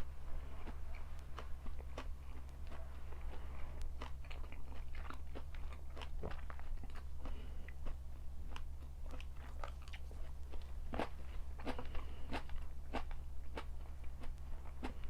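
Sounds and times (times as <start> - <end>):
chewing and crunching food: 0.0 - 15.0
low hum: 0.0 - 15.0.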